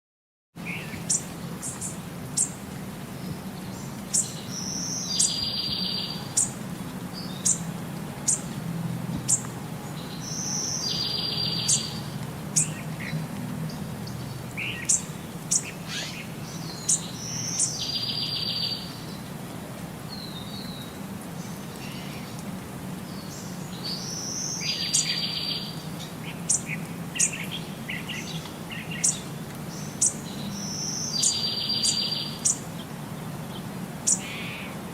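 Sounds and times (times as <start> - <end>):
small birds chirping: 0.6 - 8.6, 9.2 - 19.3, 20.1 - 34.8.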